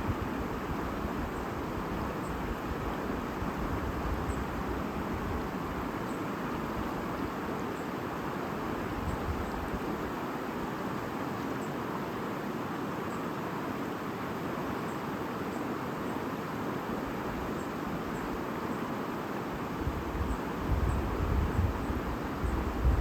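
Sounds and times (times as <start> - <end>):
babbling stream: 0.0 - 23.0.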